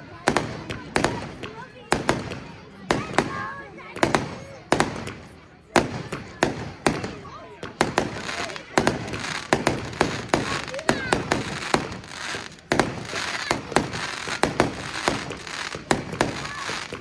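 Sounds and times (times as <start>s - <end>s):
fireworks crackling: 0.0s - 17.0s
fireworks bangs: 0.1s - 17.0s.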